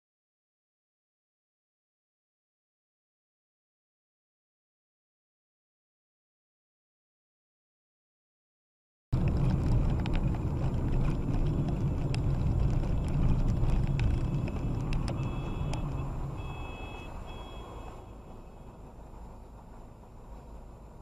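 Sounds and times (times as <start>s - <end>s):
clicks and rattles: 9.2s - 16.1s
heavy vehicle rumble: 9.2s - 21.0s
electronic warning beep: 15.1s - 18.1s.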